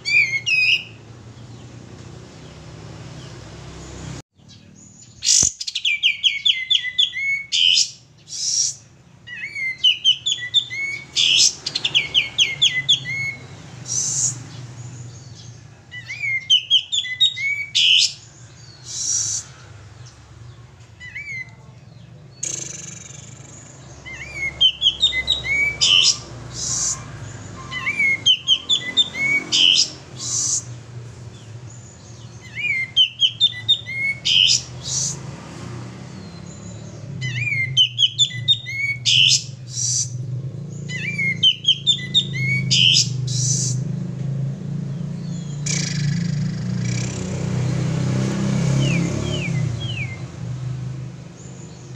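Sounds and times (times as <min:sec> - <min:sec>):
bird chirping song: 0:00.0 - 0:51.9.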